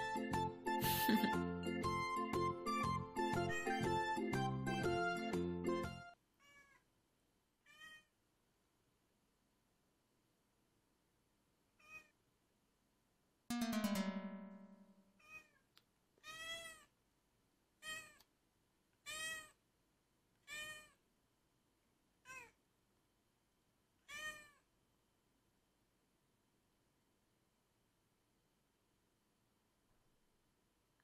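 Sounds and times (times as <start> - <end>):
strummed chord: 0.0 - 6.1, 13.5 - 15.2
cat meowing: 6.4 - 6.9, 7.6 - 8.1, 11.8 - 12.2, 15.2 - 15.6, 16.2 - 16.9, 17.8 - 18.3, 19.0 - 19.6, 20.4 - 21.0, 22.2 - 22.6, 24.0 - 24.7.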